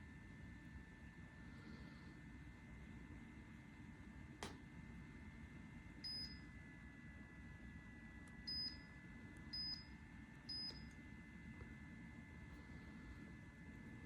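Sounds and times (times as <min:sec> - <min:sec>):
click: 0:04.4 - 0:04.6, 0:10.5 - 0:11.0.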